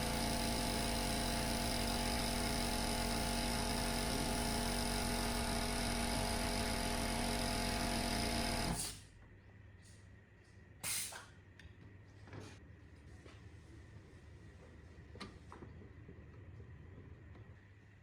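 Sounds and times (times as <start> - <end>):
air compressor humming: 0.0 - 9.0.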